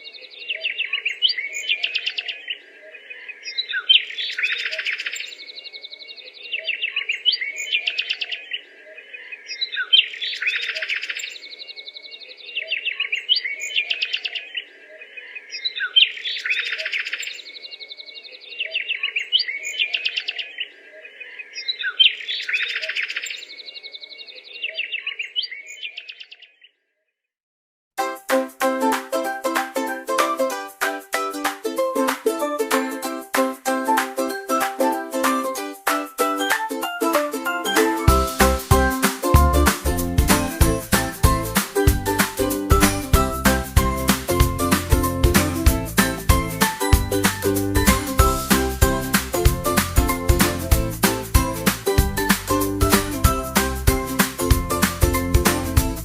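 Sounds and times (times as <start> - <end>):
birds chirping and twittering: 0.0 - 26.8.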